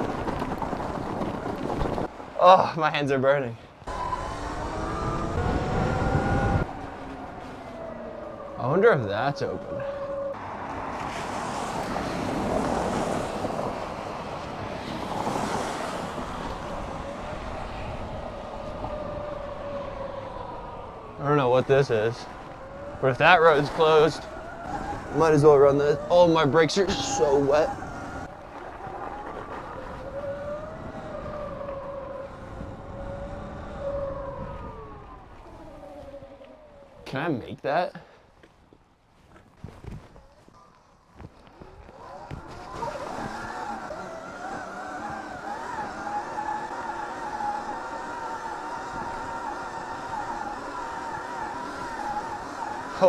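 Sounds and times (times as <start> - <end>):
wind rushing over microphone: 0.0 - 2.4, 3.8 - 37.0, 41.2 - 53.0
electric motor whine: 3.9 - 8.5, 41.9 - 53.0.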